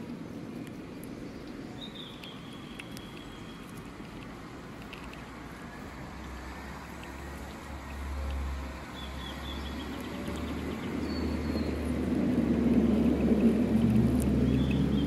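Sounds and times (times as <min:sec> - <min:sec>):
faint clicks: 0:00.6 - 0:05.4.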